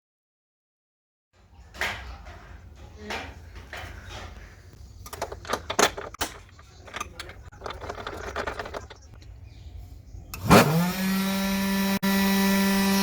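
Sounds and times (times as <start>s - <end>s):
hard objects knocking and clattering: 1.4s - 9.3s.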